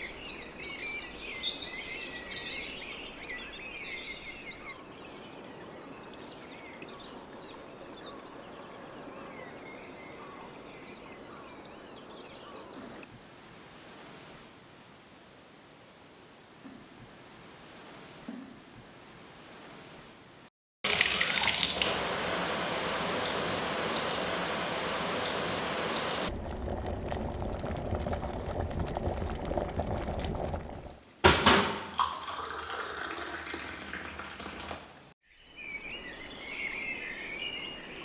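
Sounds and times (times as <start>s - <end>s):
rushing splashing water: 20.8s - 26.3s.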